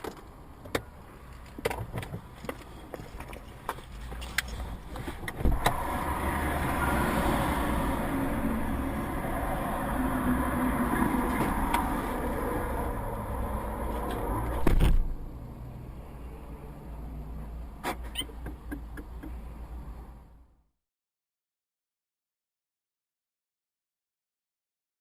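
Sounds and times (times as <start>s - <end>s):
sharp clicks and knocks: 0.0s - 5.8s, 17.8s - 19.4s
car road and engine noise: 0.0s - 20.6s.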